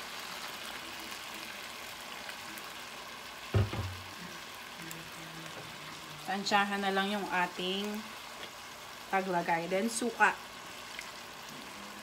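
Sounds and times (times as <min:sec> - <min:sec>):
food sizzling in a pot: 0:00.0 - 0:12.0
thump: 0:03.5 - 0:04.0.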